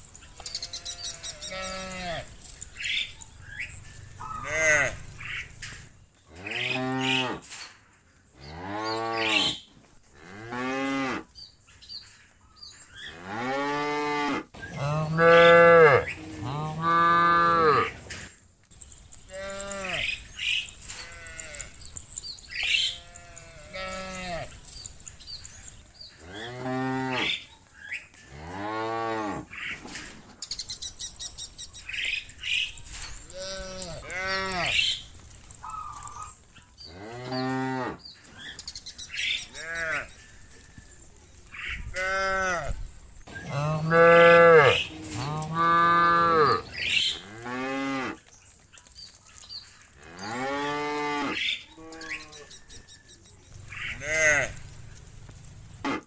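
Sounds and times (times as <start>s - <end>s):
cattle mooing: 0.6s - 2.4s, 3.6s - 7.5s, 13.1s - 18.0s, 19.3s - 20.2s, 20.9s - 22.0s, 22.6s - 24.6s, 26.2s - 27.4s, 33.2s - 35.0s, 35.7s - 38.0s, 43.5s - 48.2s, 53.8s - 54.7s.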